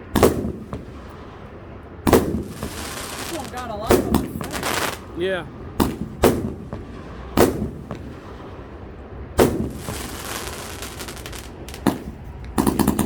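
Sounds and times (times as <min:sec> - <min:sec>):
firework bangs: 0:00.0 - 0:13.0
firework hiss: 0:00.0 - 0:13.0.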